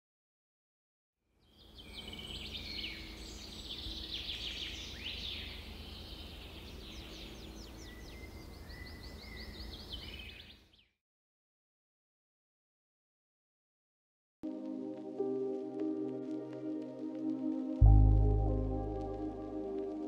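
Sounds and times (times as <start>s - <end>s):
birds chirping and trilling: 1.4s - 10.9s
low steady hum: 17.8s - 20.0s.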